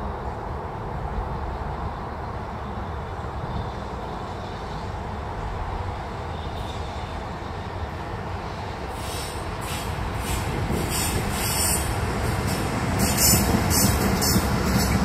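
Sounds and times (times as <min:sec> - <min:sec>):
train rolling low rumble: 0:00.0 - 0:15.0.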